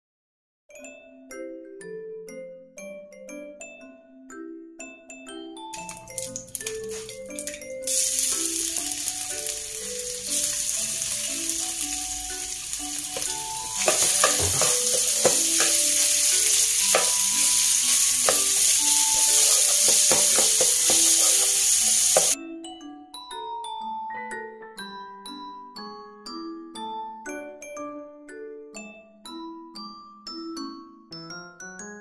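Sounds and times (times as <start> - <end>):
meat sizzling in oil: 5.8 - 22.4
spatula scraping a pan: 13.0 - 22.4.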